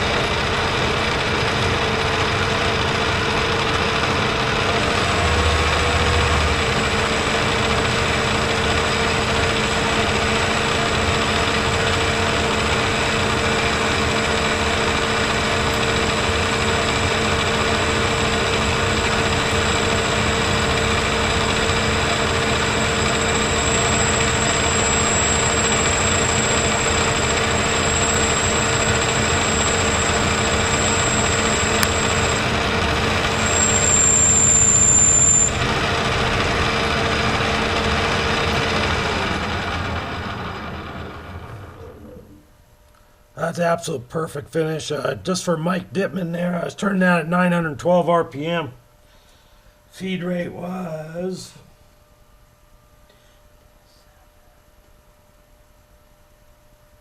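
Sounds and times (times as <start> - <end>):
metal lathe humming and whining: 0.0 - 42.2.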